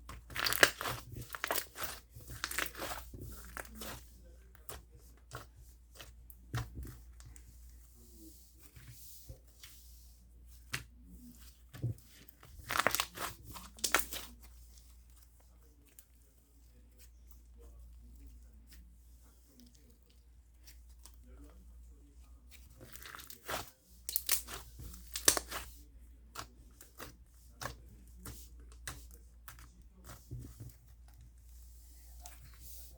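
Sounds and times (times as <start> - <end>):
slime crackling and popping: 0.2 - 3.0, 22.9 - 25.7.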